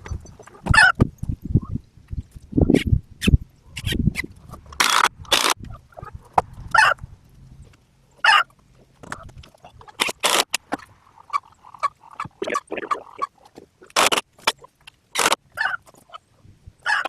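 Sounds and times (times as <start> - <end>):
chickens clucking and squawking: 5.6 - 7.0, 8.2 - 8.6, 10.7 - 13.9, 15.5 - 17.0.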